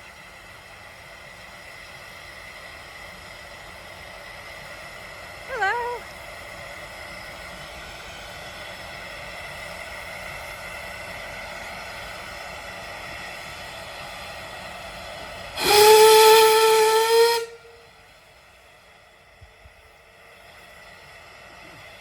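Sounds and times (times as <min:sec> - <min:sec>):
steam locomotive whistle: 0:15.6 - 0:18.0.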